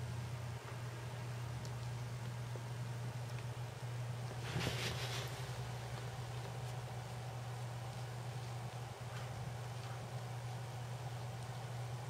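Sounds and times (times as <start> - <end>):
faint background hiss: 0.0 - 12.0
steady low hum: 0.0 - 12.0
soft rustles: 4.2 - 11.6.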